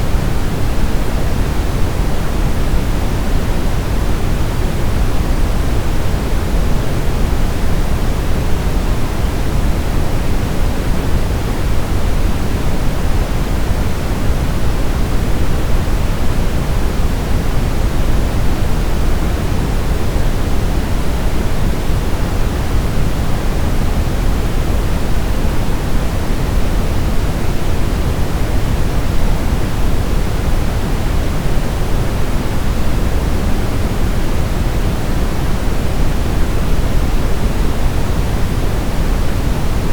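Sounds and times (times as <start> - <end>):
brown noise hiss: 0.0 - 39.9.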